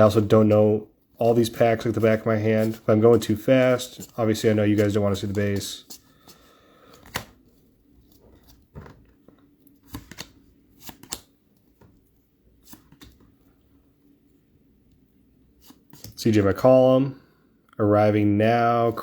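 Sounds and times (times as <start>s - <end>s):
cards being handled: 1.2s - 13.4s, 15.6s - 16.2s.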